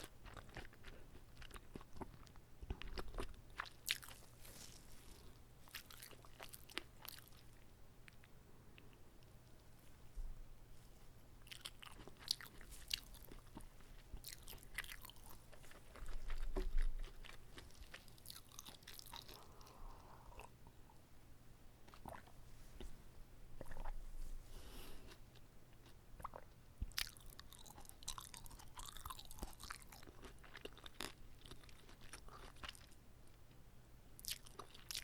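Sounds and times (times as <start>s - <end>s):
chewing and biting rice roll: 0.0s - 8.3s, 11.4s - 20.6s, 25.1s - 33.0s, 34.2s - 35.0s.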